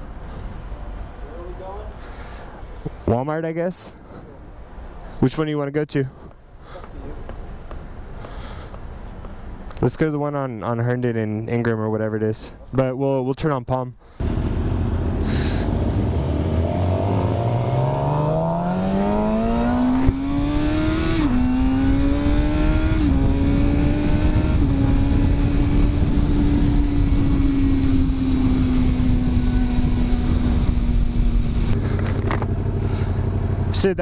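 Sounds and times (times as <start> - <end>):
wind and road noise: 0.0 - 34.0
motorcycle engine revving: 14.2 - 34.0.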